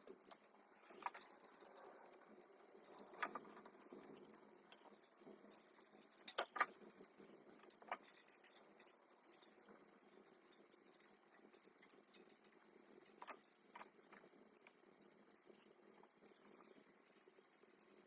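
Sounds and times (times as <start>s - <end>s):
metallic clicks of tools: 6.0s - 6.8s.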